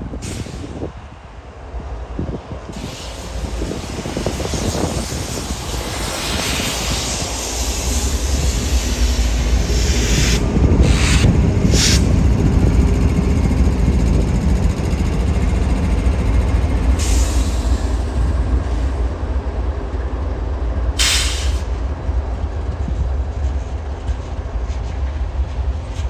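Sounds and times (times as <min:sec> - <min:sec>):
diesel locomotive engine rumble: 0:00.0 - 0:26.0
short hissing bursts: 0:02.8 - 0:11.2, 0:21.0 - 0:21.6.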